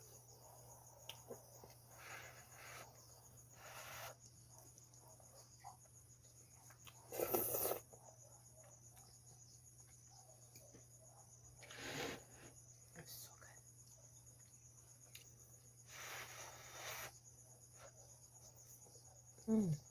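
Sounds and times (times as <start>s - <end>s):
crickets chirring: 0.0s - 19.9s
person eating noodles: 6.9s - 8.0s.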